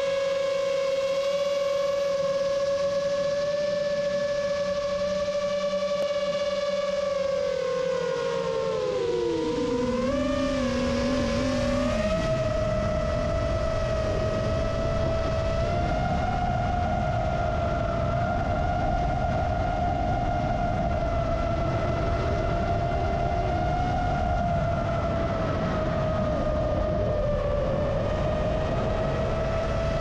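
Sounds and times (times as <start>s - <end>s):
quadcopter motors whining: 1.3s - 20.1s
wind rush: 8.4s - 30.0s.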